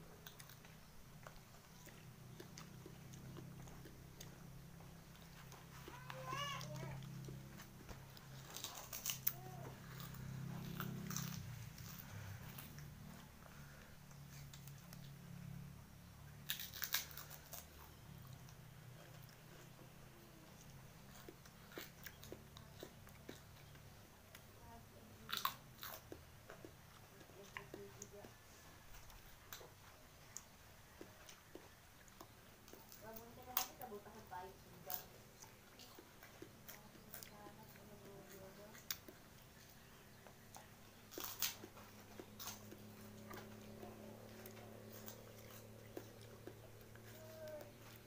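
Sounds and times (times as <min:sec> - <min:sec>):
wet chewing and smacks: 0:00.0 - 0:15.6, 0:16.3 - 0:48.0
low steady hum: 0:00.0 - 0:48.0
mouth clicks of chewing: 0:00.1 - 0:05.8
biting into fruit peel: 0:00.1 - 0:15.3, 0:16.4 - 0:24.4, 0:34.8 - 0:48.0.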